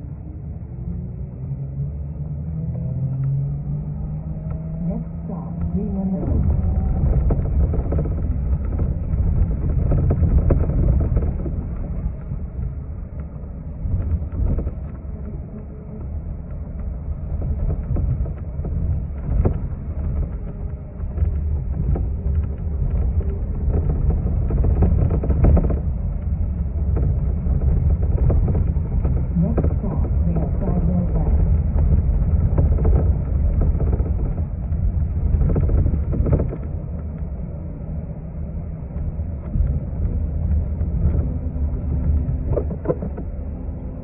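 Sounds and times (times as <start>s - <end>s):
bus engine and road rumble: 0.0s - 44.0s
bus body knocks and rattles: 6.3s - 12.4s, 17.2s - 36.8s, 39.4s - 43.3s.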